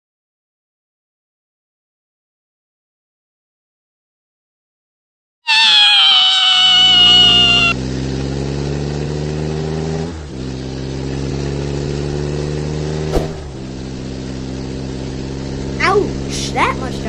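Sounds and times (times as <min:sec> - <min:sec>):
loud high cry: 0:05.5 - 0:07.8
car engine running: 0:06.8 - 0:17.0.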